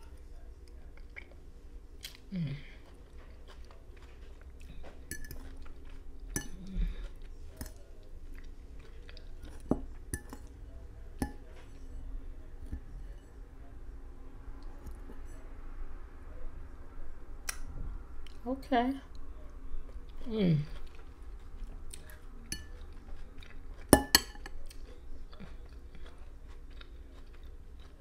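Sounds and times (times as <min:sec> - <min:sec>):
chewing salad: 0:00.0 - 0:13.9, 0:18.2 - 0:18.4, 0:19.1 - 0:28.0
fork clinking on plate: 0:05.1 - 0:05.5, 0:09.5 - 0:10.5, 0:22.5 - 0:22.8, 0:23.9 - 0:24.6.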